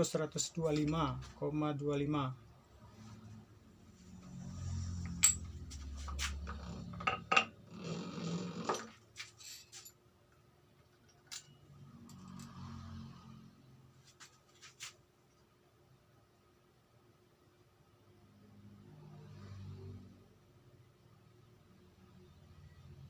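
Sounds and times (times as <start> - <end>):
metal parts clinking: 5.1 - 5.5.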